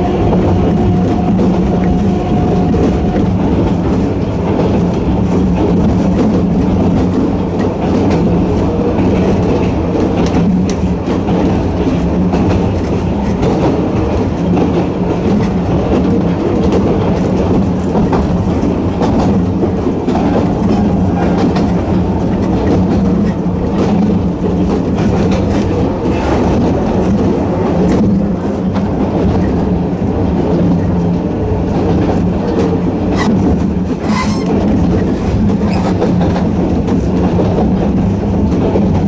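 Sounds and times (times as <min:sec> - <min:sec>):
electric train motor drone: 0:00.0 - 0:05.7
wheels clicking over rail joints: 0:00.0 - 0:39.0.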